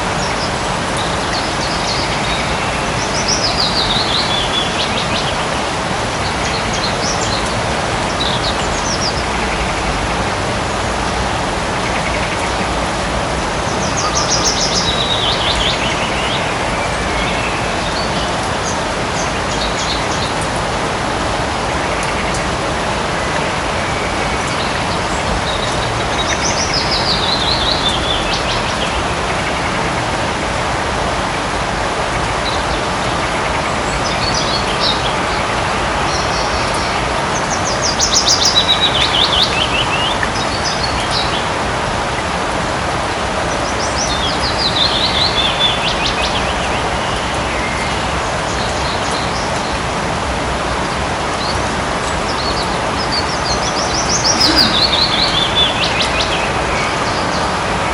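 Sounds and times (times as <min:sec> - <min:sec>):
light rain falling: 0:00.0 - 0:57.9
songbird trilling: 0:01.3 - 0:04.8, 0:53.1 - 0:56.4
bird chirps: 0:01.9 - 0:04.9, 0:52.4 - 0:56.5.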